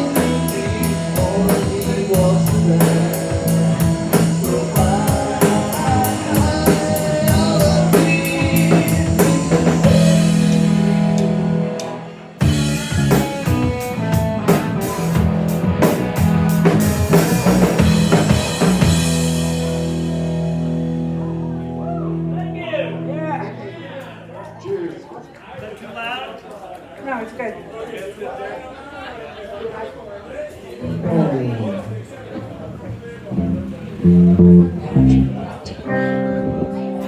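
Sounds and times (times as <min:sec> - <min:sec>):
drum kit: 0:00.0 - 0:21.6
bass guitar: 0:00.0 - 0:24.6, 0:30.8 - 0:37.0
electric guitar: 0:00.0 - 0:24.6, 0:30.8 - 0:37.0.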